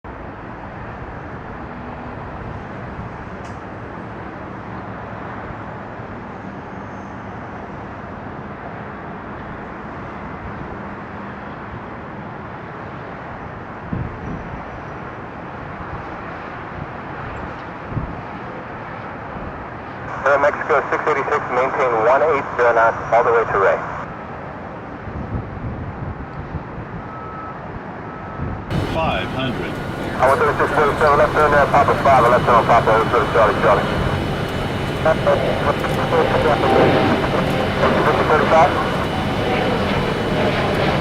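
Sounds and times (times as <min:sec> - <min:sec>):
faint low hum: 0:28.7 - 0:41.0
outdoor rumble and hiss: 0:28.7 - 0:41.0.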